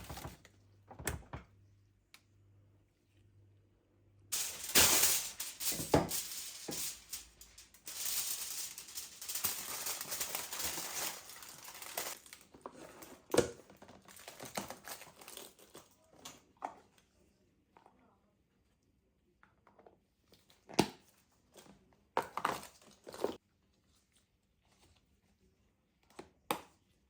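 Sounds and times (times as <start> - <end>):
rustling and crinkling: 0.0 - 0.5, 4.3 - 15.9
objects clicking and knocking: 4.4 - 12.2.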